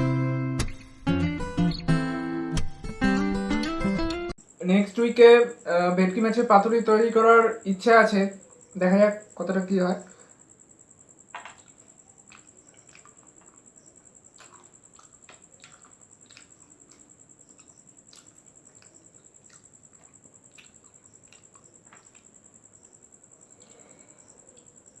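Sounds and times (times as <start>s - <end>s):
faint high-pitched whine: 4.4s - 25.0s
person chewing and eating: 11.4s - 25.0s.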